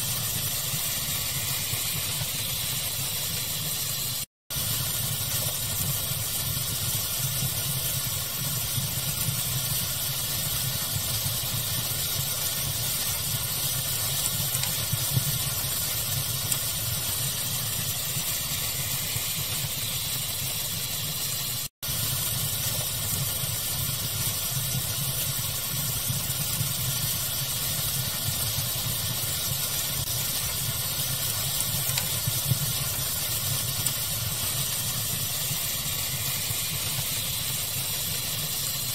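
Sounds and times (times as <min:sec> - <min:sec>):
fire crackling: 0:00.0 - 0:38.9
steady noise hiss: 0:00.0 - 0:38.9
faint fire pops: 0:29.5 - 0:38.6.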